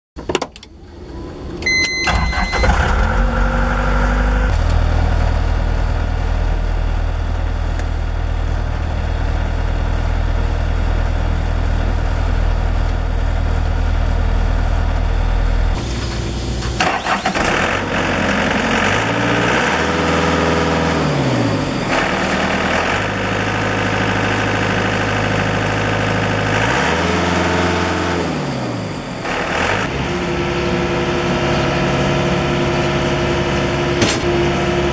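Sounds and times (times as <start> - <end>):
diesel engine starting and idling: 0.5 - 34.9
warning beep: 1.6 - 3.1.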